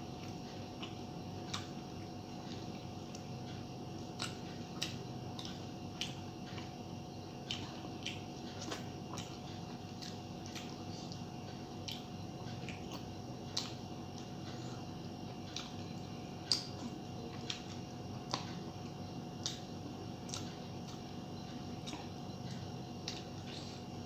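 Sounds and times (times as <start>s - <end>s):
person chewing food: 0.0s - 24.0s
steady low hum: 0.0s - 24.0s
wet mouth clicks and smacks: 16.4s - 16.8s.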